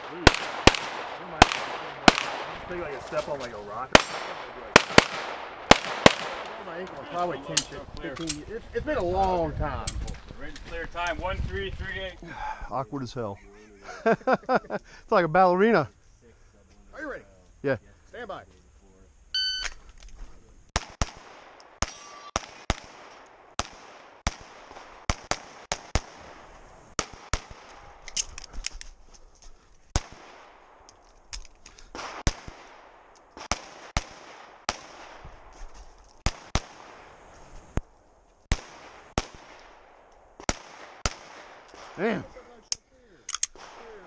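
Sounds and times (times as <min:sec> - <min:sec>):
pistol shots: 0:00.0 - 0:02.7, 0:03.9 - 0:06.7, 0:20.8 - 0:26.4, 0:27.0 - 0:28.3, 0:29.9 - 0:30.8, 0:31.9 - 0:35.2, 0:36.2 - 0:37.0, 0:38.5 - 0:42.0, 0:43.3 - 0:44.0.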